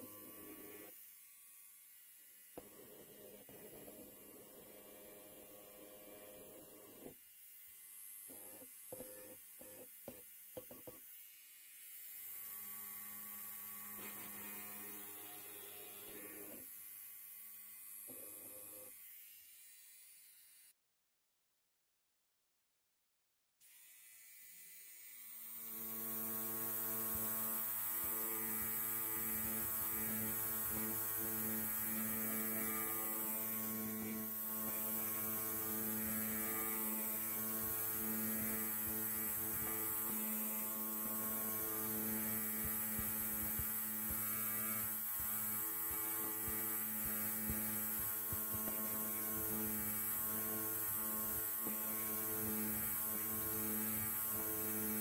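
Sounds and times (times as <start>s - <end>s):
electric hair clipper buzzing: 0.0s - 20.8s, 23.6s - 55.0s.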